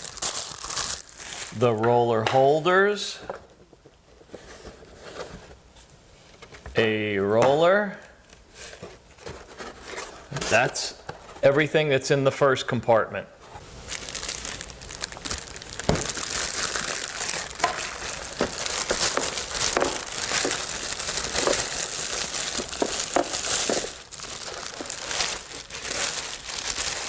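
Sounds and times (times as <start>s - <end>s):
packaging crinkling: 0.0s - 1.6s, 13.6s - 27.0s.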